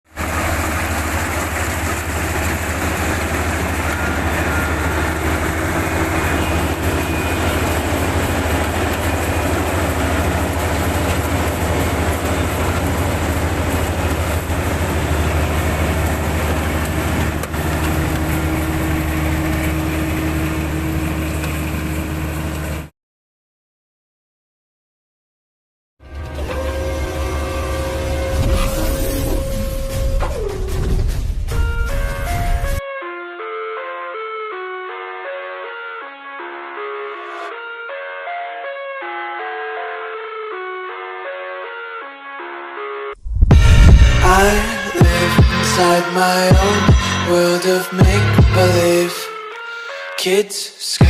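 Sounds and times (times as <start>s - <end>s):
harvester engine rumbling: 0.2s - 22.9s, 43.2s - 45.9s.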